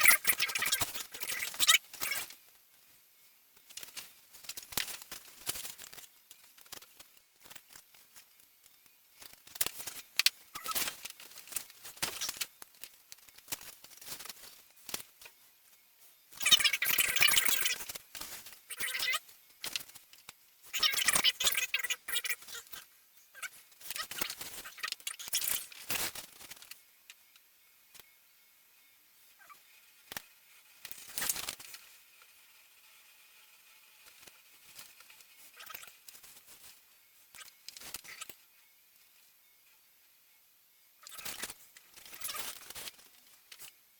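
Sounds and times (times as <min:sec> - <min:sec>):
scratching and rustling: 0:29.4 - 0:38.4, 0:41.0 - 0:43.8.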